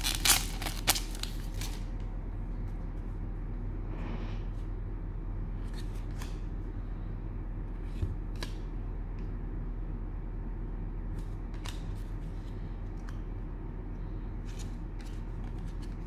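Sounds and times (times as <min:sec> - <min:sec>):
cards rustling and sliding: 0:00.0 - 0:02.0
steady low hum: 0:00.0 - 0:16.0.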